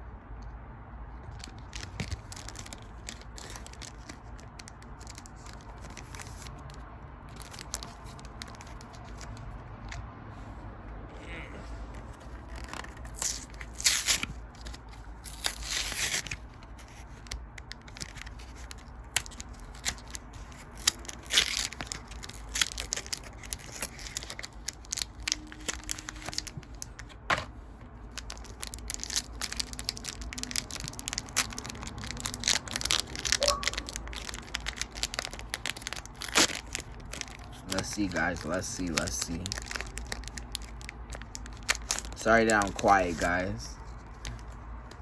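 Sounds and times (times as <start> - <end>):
foil wrapper tearing and crinkling: 1.3 - 9.4, 12.1 - 27.2, 28.0 - 44.5
cards clicking and rustling: 11.9 - 27.6, 28.2 - 45.0.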